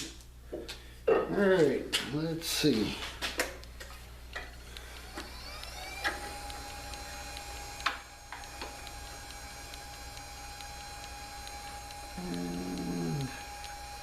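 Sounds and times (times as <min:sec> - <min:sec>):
light ticking: 0:03.5 - 0:14.0
lathe motor whine: 0:04.6 - 0:14.0.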